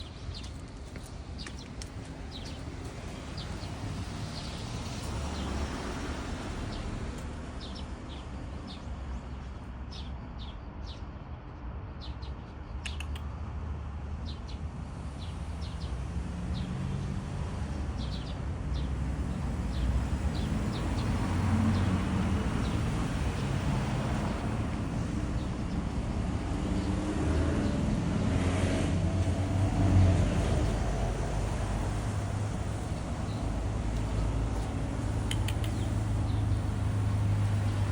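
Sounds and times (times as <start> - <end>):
small birds chirping: 0.0 - 11.1, 12.0 - 13.3, 15.2 - 28.5, 29.3 - 37.9
steady low rumble: 22.1 - 37.9.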